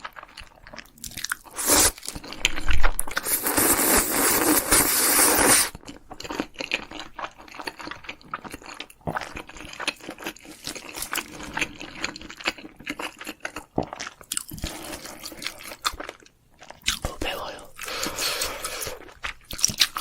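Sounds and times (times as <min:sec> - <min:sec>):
person chewing crunchy food: 0:00.0 - 0:20.0.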